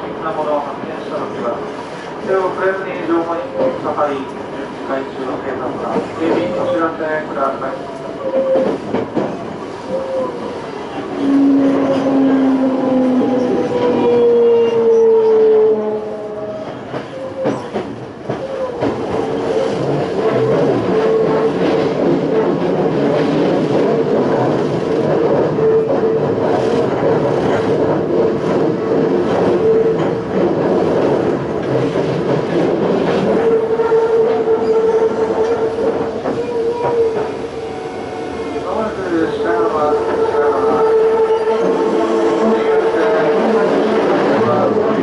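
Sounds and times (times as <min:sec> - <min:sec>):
train wheel rumble: 0:00.0 - 0:45.0
rail joints clicking: 0:01.0 - 0:10.4, 0:16.4 - 0:37.6.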